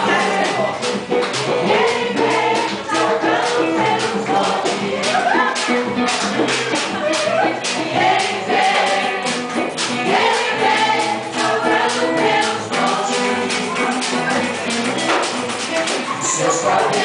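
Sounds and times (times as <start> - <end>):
group singing gospel song: 0.0 - 17.0
percussion beat: 0.0 - 17.0.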